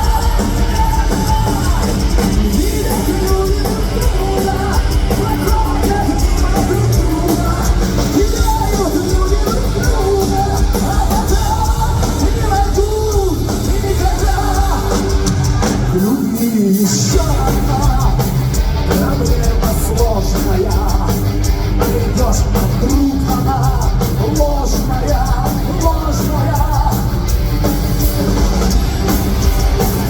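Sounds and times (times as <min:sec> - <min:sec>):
heavy metal band playing: 0:00.0 - 0:30.0.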